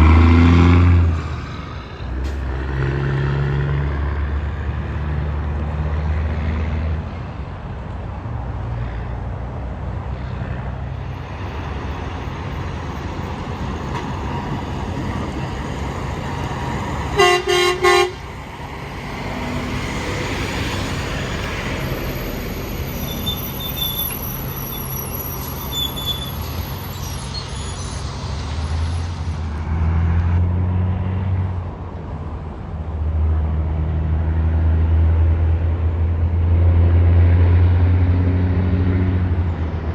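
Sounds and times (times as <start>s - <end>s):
highway traffic with trucks: 0.0s - 39.9s
vehicle horn blasts: 17.2s - 18.2s.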